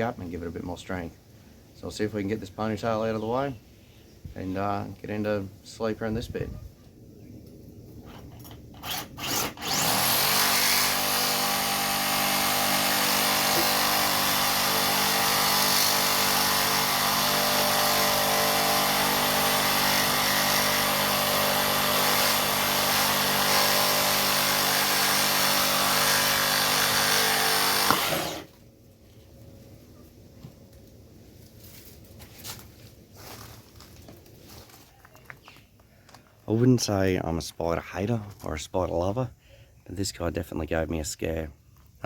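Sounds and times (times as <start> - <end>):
reciprocating saw cutting screws: 8.0 - 28.5.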